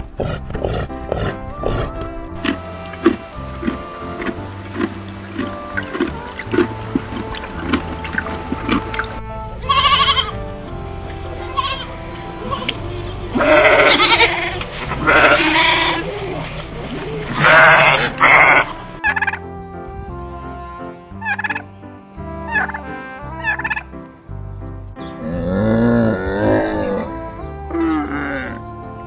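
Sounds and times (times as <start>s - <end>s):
background music: 0.0s - 29.0s
low drawn-out animal call: 0.2s - 29.0s
turkeys gobbling: 2.4s - 19.4s, 21.2s - 21.6s, 22.5s - 23.9s.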